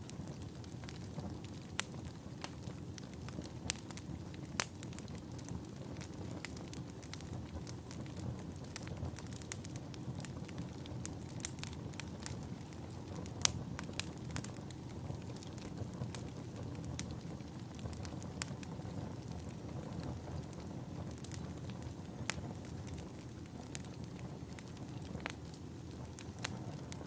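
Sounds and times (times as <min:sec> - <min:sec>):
log fire crackling and popping: 0:00.0 - 0:27.0.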